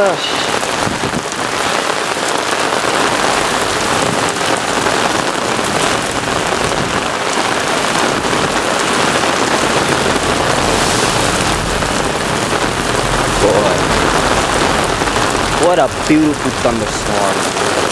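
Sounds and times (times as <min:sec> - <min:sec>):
heavy rain pouring: 0:00.0 - 0:17.9
low thunder rumble: 0:00.4 - 0:17.9.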